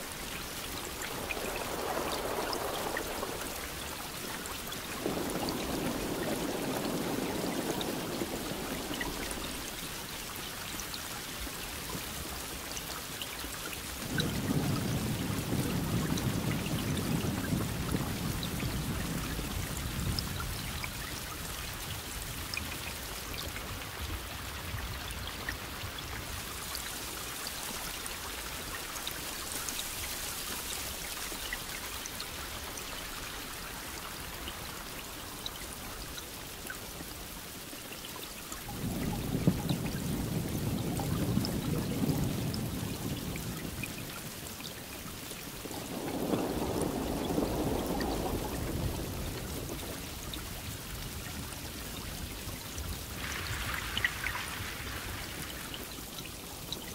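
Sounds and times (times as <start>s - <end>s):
steady rain falling: 0.0s - 56.9s
thunder rumbling: 0.4s - 10.1s, 14.0s - 26.7s, 38.7s - 44.4s, 45.6s - 56.1s.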